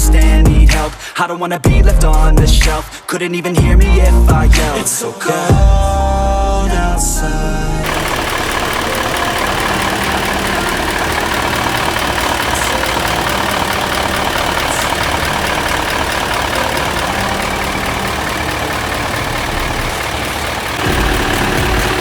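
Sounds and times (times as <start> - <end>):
diesel truck engine idling: 7.8 - 22.0.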